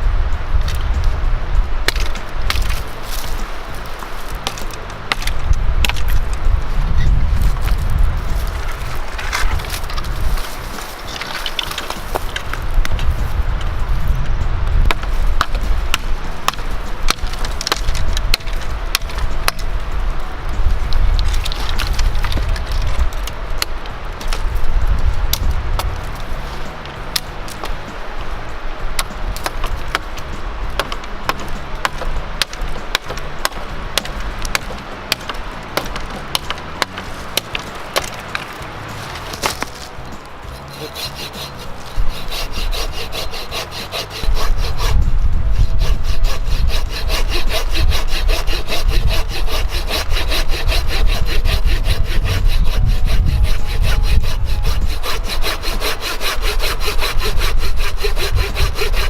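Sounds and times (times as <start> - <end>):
saw cutting wood: 1.9 - 6.3, 7.4 - 13.4, 29.0 - 59.0
clicks and scrapes: 7.4 - 13.1, 30.8 - 45.0.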